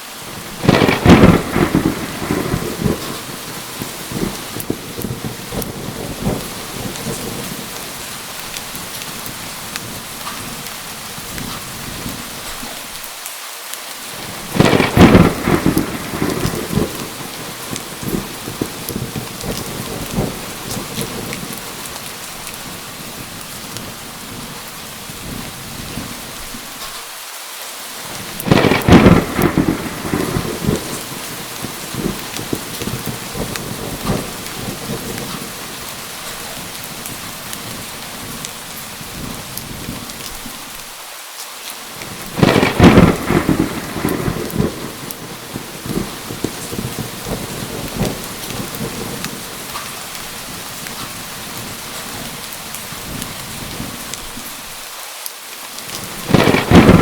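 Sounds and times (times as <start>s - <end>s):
steady rain: 0.0s - 57.0s
thunder rumbling: 0.3s - 12.7s, 14.2s - 26.9s, 28.0s - 40.6s, 42.0s - 54.8s, 55.9s - 57.0s.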